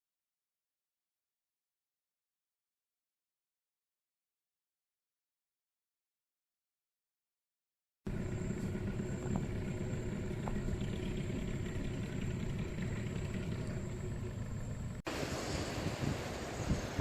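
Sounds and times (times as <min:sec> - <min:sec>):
boat engine rumbling: 0:08.1 - 0:17.0
high whine: 0:08.1 - 0:17.0
wind buffeting microphone: 0:08.5 - 0:17.0.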